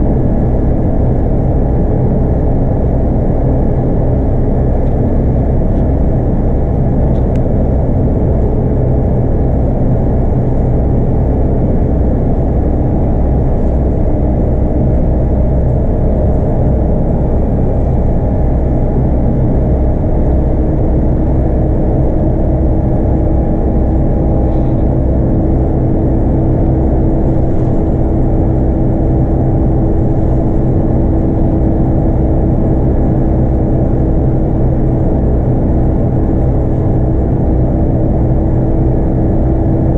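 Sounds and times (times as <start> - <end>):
bus diesel engine running: 0.0 - 39.9
steady higher hum: 0.0 - 39.9.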